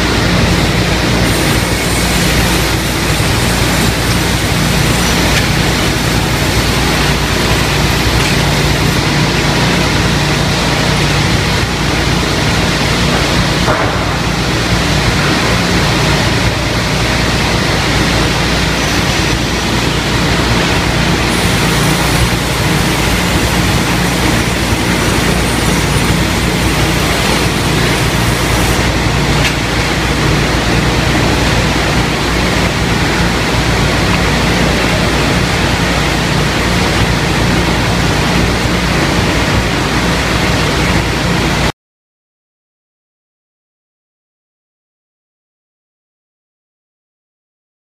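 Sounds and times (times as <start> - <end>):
ripping machine humming: 0.0 - 41.3.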